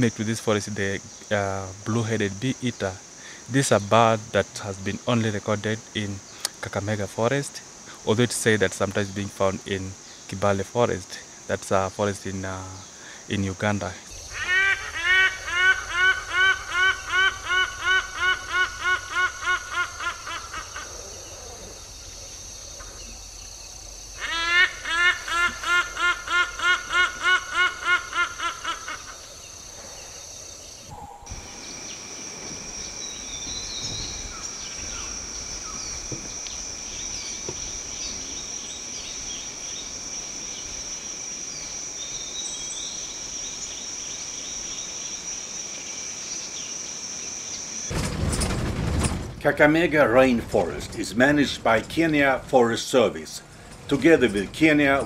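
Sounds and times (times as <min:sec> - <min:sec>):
bird calling guttural notes: 0:00.0 - 0:48.0
insect drone: 0:00.0 - 0:55.0
bird chirps: 0:14.1 - 0:40.8, 0:41.5 - 0:45.3.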